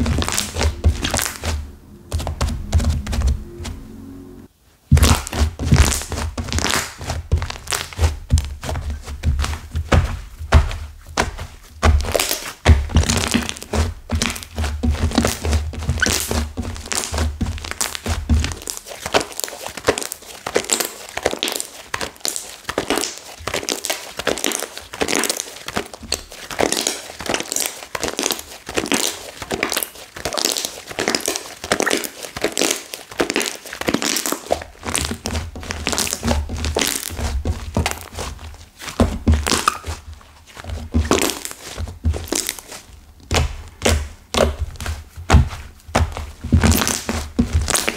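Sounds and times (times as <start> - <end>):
slime and clay crackling: 0.0 - 3.4, 4.9 - 47.9
low thumps: 0.0 - 4.5.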